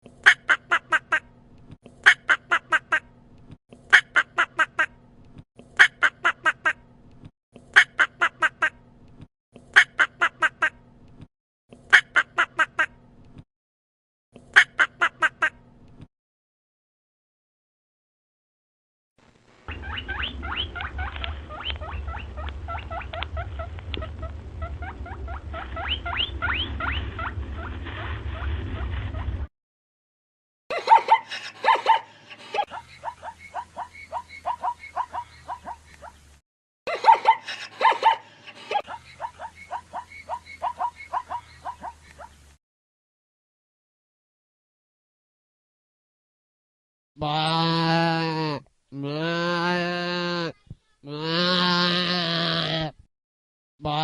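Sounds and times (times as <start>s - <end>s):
steady low hum: 19.6s - 29.5s
small animals squeaking: 19.7s - 27.3s, 32.7s - 36.2s, 38.8s - 42.4s
duck quacking: 38.5s - 42.3s.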